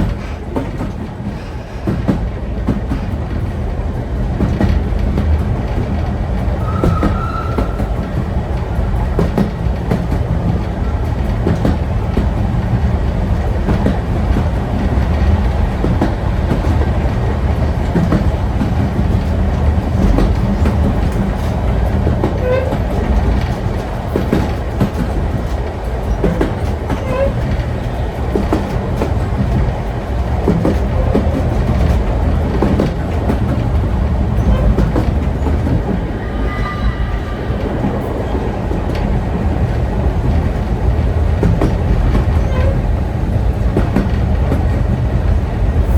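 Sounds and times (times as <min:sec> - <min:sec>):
train carriage rumble: 0:00.0 - 0:45.9
wheels clacking over rail joints: 0:00.0 - 0:45.9
high wheel squeal: 0:06.6 - 0:09.5, 0:35.4 - 0:38.5.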